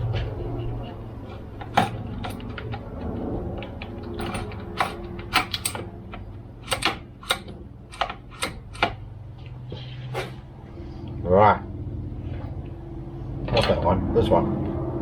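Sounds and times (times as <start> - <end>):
steady low hum: 0.0 - 15.0
tools and parts clicking: 1.3 - 9.0.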